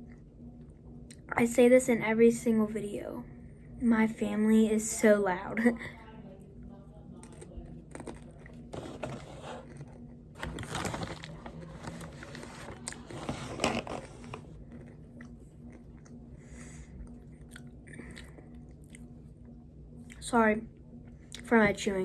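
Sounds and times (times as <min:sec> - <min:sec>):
person chewing snack: 0:07.2 - 0:08.6.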